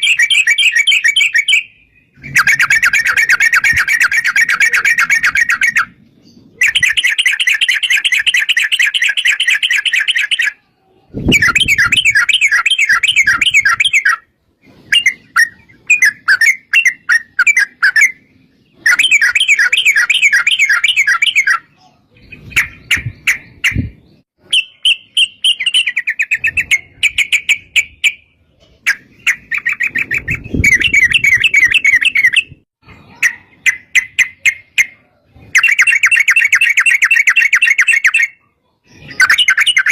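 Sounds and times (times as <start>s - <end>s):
bulbuls singing trilled phrases: 0.0s - 39.9s.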